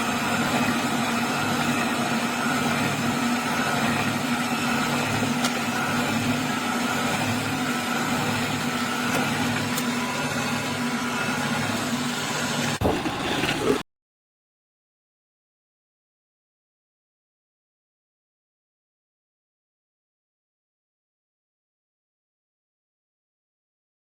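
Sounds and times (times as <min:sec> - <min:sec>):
juice extractor motor humming: 0:00.0 - 0:13.8.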